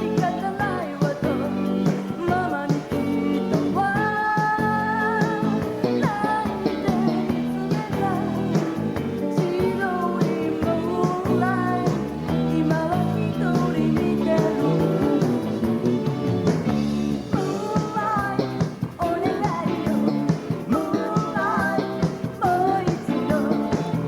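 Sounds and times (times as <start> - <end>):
woman singing: 0.0 - 15.6, 17.3 - 24.0
live pop band: 0.0 - 24.0.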